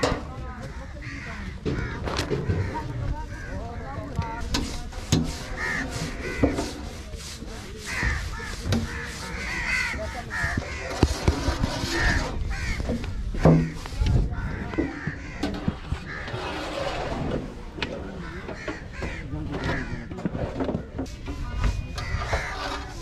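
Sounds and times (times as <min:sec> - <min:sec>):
birds cawing: 0:00.6 - 0:03.9, 0:05.5 - 0:06.6, 0:07.8 - 0:11.0, 0:11.9 - 0:16.5, 0:18.1 - 0:20.1, 0:22.0 - 0:22.9
sharp knocks and thuds: 0:12.7 - 0:16.0.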